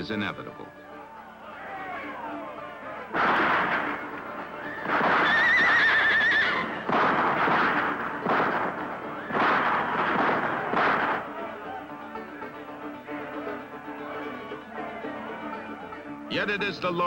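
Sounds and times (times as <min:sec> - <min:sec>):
loud noisy commotion: 0:01.6 - 0:11.8
horse whinnying: 0:04.6 - 0:06.9.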